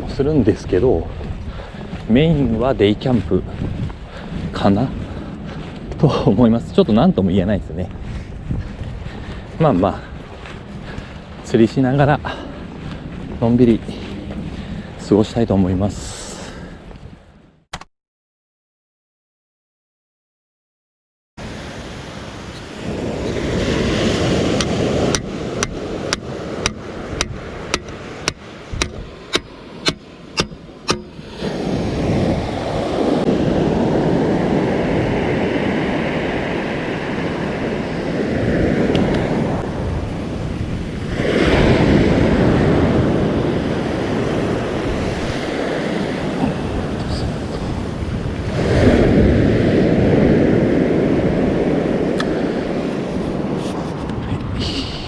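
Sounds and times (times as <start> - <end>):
wind on microphone: 0.0 - 17.6, 21.4 - 55.0
surf breaking on shore: 21.4 - 55.0.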